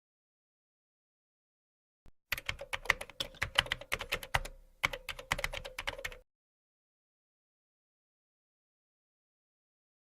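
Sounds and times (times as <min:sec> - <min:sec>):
rapid typing on keyboard: 0:02.3 - 0:06.2.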